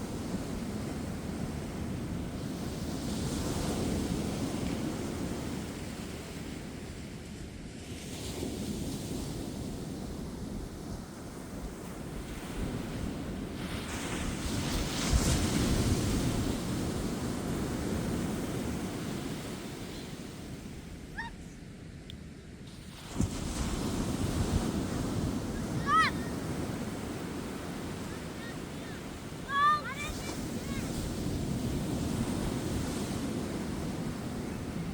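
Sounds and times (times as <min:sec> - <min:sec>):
ocean waves breaking on beach: 0:00.0 - 0:21.8, 0:22.5 - 0:34.9.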